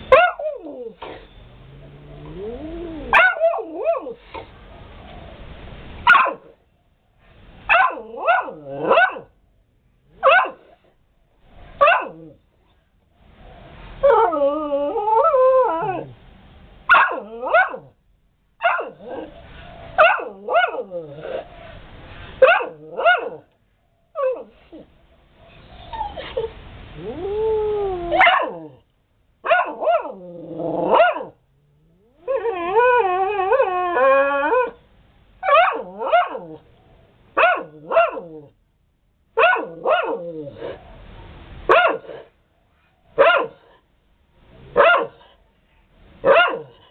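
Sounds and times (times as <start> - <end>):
dog warbling cries: 0.0 - 4.2, 14.0 - 16.2, 16.9 - 17.9, 18.6 - 21.6, 24.2 - 24.9, 25.5 - 28.8, 29.4 - 34.8, 35.4 - 36.6, 37.4 - 38.5, 39.4 - 40.8
dog barking: 0.1 - 0.6, 3.1 - 4.2, 6.0 - 6.5, 7.7 - 9.3, 10.2 - 10.8, 11.8 - 12.3, 16.9 - 17.9, 18.6 - 19.3, 20.0 - 20.9, 22.4 - 23.5, 28.2 - 28.6, 29.4 - 30.2, 30.9 - 31.4, 35.4 - 36.5, 37.4 - 38.3, 39.4 - 40.2, 41.7 - 42.3, 43.2 - 43.8, 44.7 - 45.3, 46.2 - 46.8.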